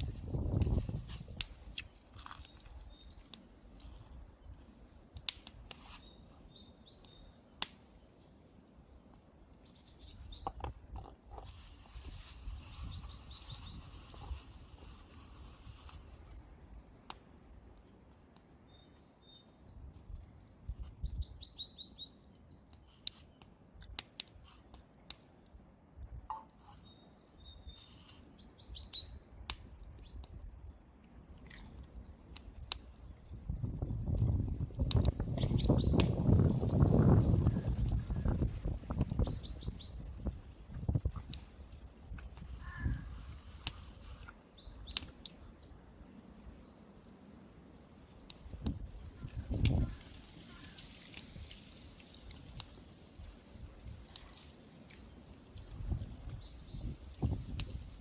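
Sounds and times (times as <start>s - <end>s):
songbird singing: 1.8s - 4.7s, 5.8s - 10.8s, 12.4s - 14.4s, 17.9s - 19.9s, 20.9s - 23.8s, 26.3s - 29.3s, 35.2s - 40.3s, 44.2s - 47.3s, 55.0s - 58.0s
rustling: 10.8s - 16.4s.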